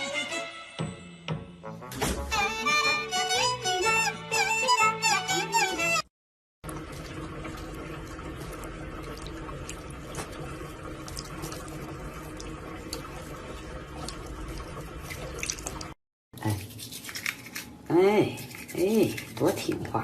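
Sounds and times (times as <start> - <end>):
water running from a tap: 6.6 - 17.7
small ticks and splashes: 6.7 - 16.0.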